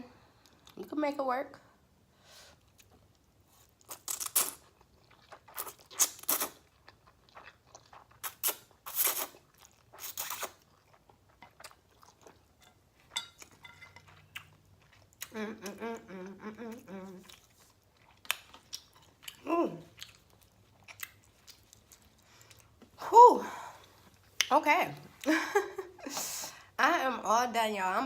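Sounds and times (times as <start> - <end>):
wet chewing: 2.7 - 15.8, 17.0 - 22.9
loud noodle slurps: 8.2 - 10.6
soft mouth clicks: 10.0 - 10.6.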